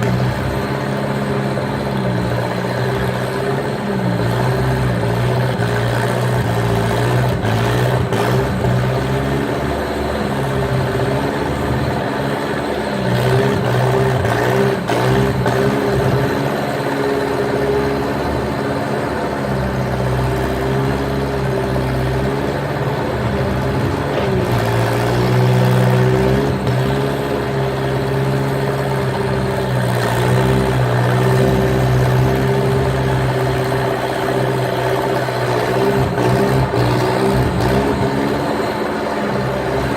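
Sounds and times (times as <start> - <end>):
skid steer engine running: 0.0 - 39.9.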